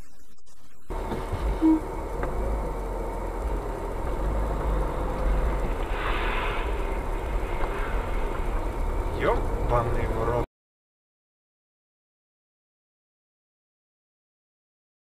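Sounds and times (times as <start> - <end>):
car road and engine rumble: 0.9 - 10.5
short loud beep: 1.5 - 1.9
brief hissing: 5.9 - 6.8.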